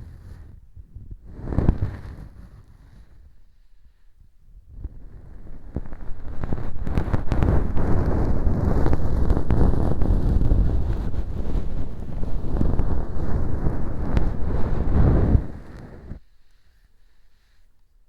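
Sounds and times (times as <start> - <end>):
ear pick scraping and crackling: 1.3 - 3.2, 4.8 - 16.2.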